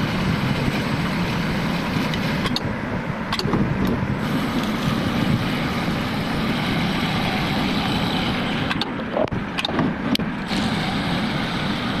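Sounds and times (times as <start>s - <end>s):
coil winding machine running: 0.0s - 12.0s
sharp clicks: 3.3s - 4.0s.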